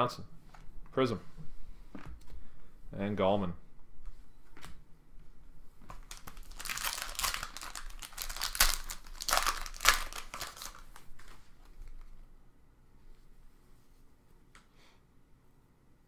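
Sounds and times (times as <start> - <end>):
foil wrapper crinkling: 5.9 - 12.1.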